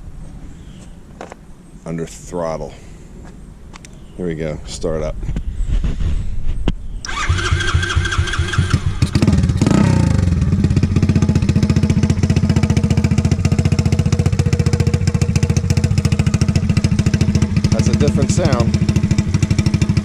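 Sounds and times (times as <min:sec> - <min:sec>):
electric starter cranking: 0:07.1 - 0:09.2
motorbike engine idling: 0:07.1 - 0:20.0.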